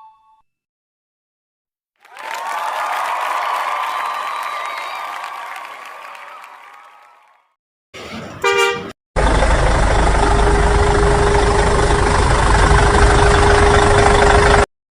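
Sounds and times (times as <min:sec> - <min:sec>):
steady engine hum: 0:08.5 - 0:14.7.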